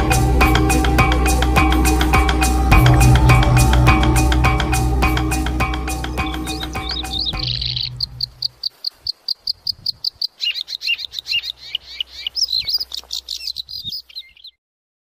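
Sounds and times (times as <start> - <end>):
music track: 0.0 - 8.4
birds chirping: 0.0 - 14.6.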